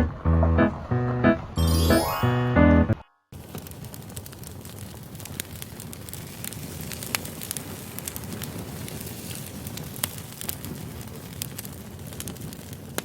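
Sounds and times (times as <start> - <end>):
campfire flames rushing: 3.3 - 13.0
wood crackling and popping: 3.4 - 13.0.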